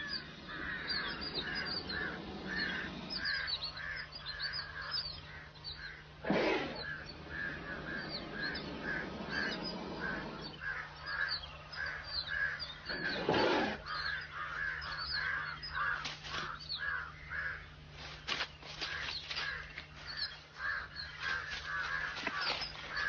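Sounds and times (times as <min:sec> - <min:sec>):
thin high bird chirps: 0:00.0 - 0:17.0
chorus of birds calling: 0:00.0 - 0:23.0.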